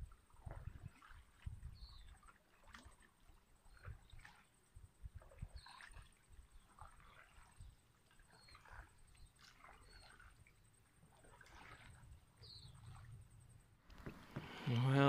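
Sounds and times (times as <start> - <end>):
faint bird chirps: 1.8 - 2.3, 5.4 - 10.7, 12.4 - 13.7.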